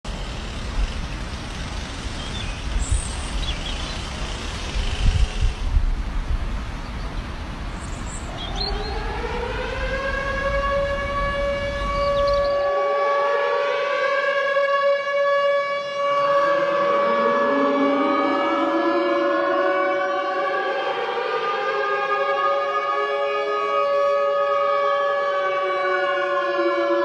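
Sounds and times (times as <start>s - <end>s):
air-raid siren wailing: 0.1s - 5.8s, 7.4s - 27.0s
low rumbling noise: 0.1s - 12.7s.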